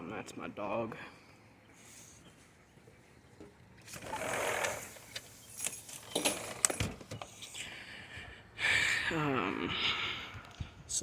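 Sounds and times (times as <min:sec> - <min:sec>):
dog collar tags jingling: 0:05.4 - 0:06.9.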